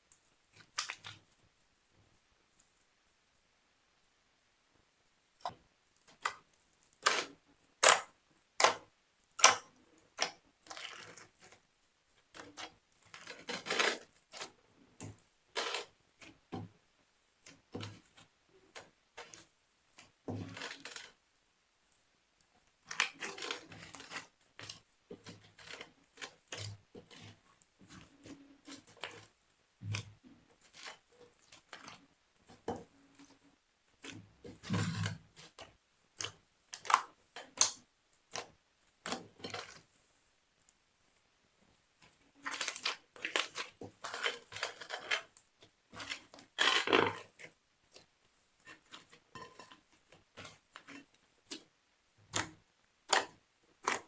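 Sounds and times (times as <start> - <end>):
slime popping and crackling: 42.4 - 45.4, 46.0 - 47.3.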